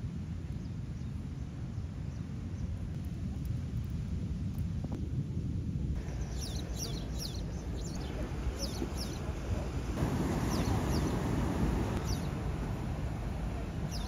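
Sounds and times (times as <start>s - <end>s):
steady low rumble: 1.2s - 14.0s
small birds chirping: 6.0s - 12.5s, 13.3s - 14.0s.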